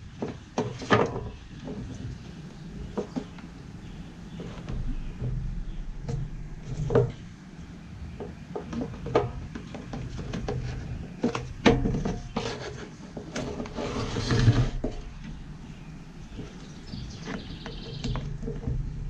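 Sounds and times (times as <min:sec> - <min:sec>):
rubbing and scraping: 0:00.3 - 0:07.5, 0:08.2 - 0:19.0.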